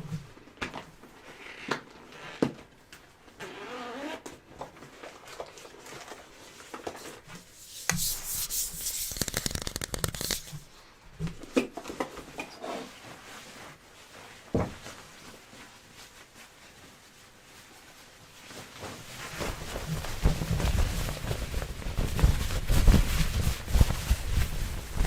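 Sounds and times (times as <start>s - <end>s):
rubbing and scratching: 7.1s - 10.7s, 18.5s - 25.0s.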